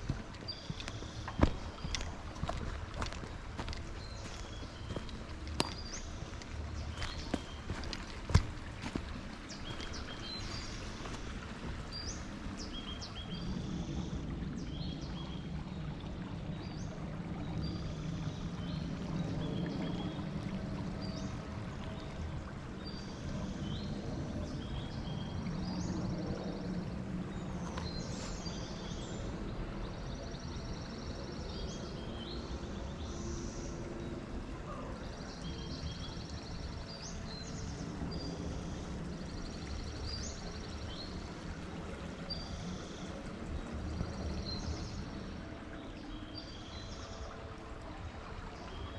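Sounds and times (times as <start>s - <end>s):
small birds chirping and trilling: 0.0s - 15.9s.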